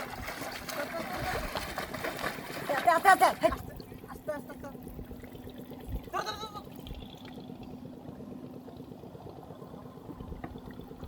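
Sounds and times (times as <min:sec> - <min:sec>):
water pouring and trickling: 0:00.0 - 0:07.8
steady low hum: 0:00.0 - 0:11.0.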